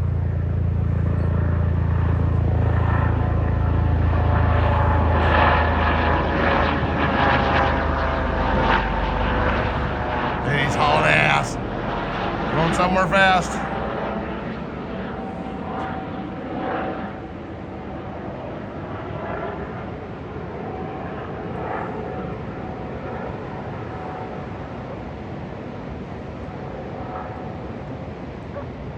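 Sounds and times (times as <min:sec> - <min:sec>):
helicopter flying past: 0:00.3 - 0:15.3.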